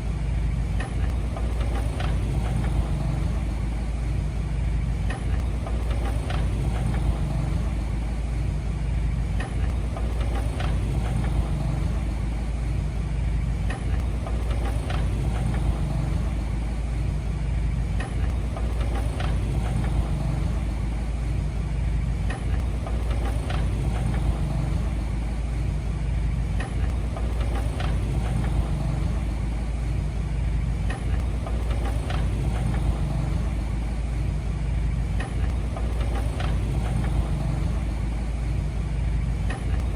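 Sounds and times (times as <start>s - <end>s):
heavy machine engine droning: 0.0s - 39.9s.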